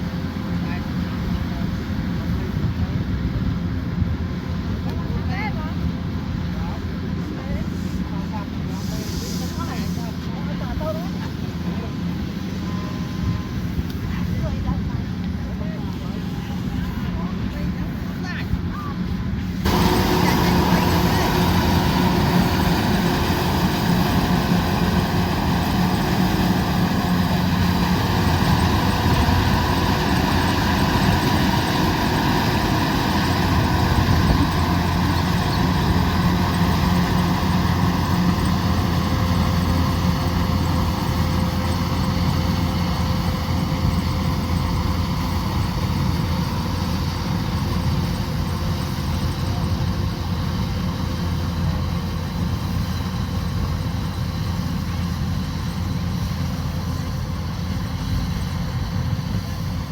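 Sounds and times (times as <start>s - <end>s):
combine harvester engine drone: 0.0s - 59.9s
steady whining tones: 6.3s - 59.9s.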